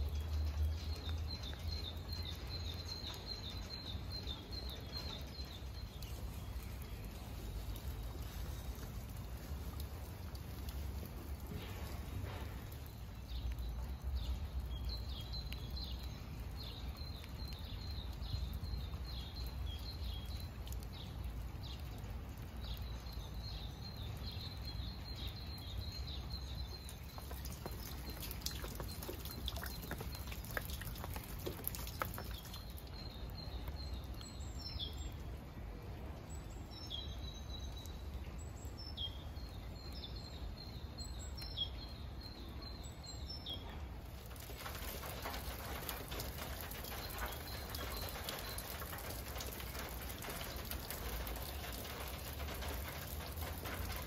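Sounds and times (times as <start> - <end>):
small songbird singing: 0.0 - 35.3
low outdoor rumble: 0.0 - 41.3, 41.9 - 54.0.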